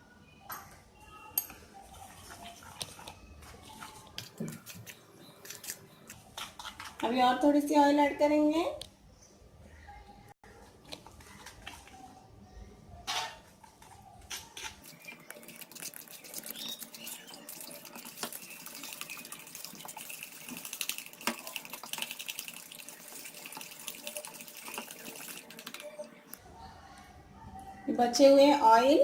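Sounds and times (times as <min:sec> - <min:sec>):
wet clicking and scraping in bowl: 0:01.4 - 0:07.2, 0:14.3 - 0:26.4.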